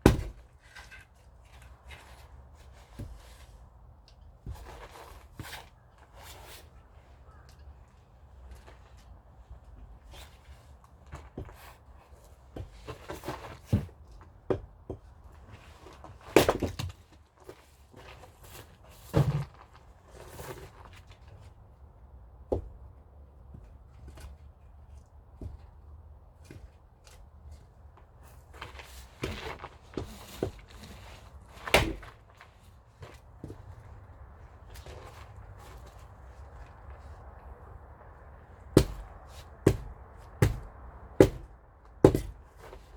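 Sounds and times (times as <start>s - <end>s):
wooden knocks and thuds: 0.0s - 0.5s, 38.8s - 42.4s.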